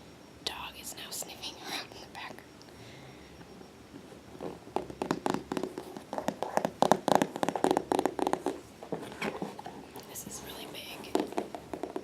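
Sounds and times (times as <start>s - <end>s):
fingers tapping on cat carrier: 4.8s - 8.6s.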